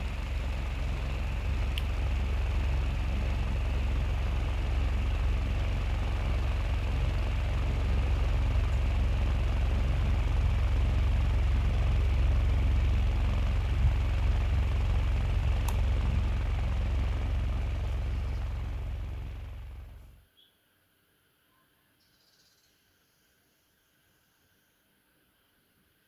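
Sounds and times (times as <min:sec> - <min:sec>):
small fan motor humming: 0:00.0 - 0:20.3.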